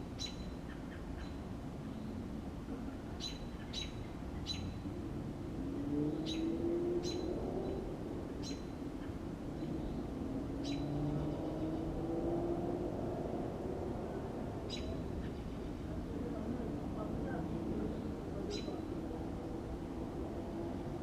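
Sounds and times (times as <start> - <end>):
bird chirping: 0.2 - 2.2, 3.2 - 4.8, 6.0 - 11.9, 14.6 - 15.9, 17.8 - 19.1.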